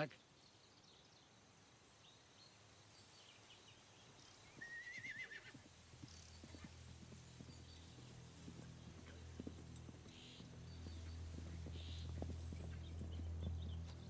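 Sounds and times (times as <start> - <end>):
hoof clops: 3.4 - 14.0
horse whinnying: 4.6 - 5.6
low steady drone: 6.3 - 14.0.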